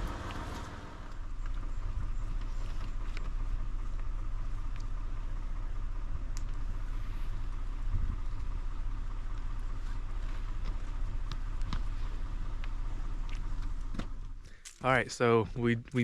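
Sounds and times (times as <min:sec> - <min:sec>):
motor vehicle rumbling: 0:00.0 - 0:16.0.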